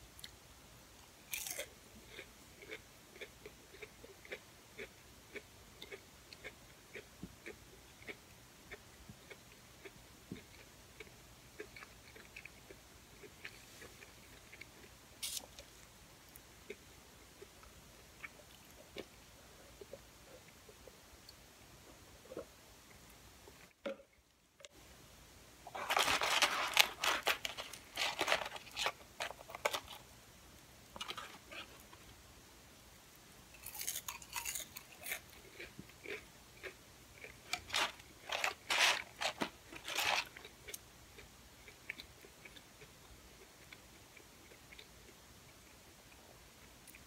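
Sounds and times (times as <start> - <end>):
crunching crispy fries: 1.3 - 2.8, 25.7 - 30.0, 33.5 - 40.8
quiet chewing: 1.3 - 24.8, 33.1 - 47.0.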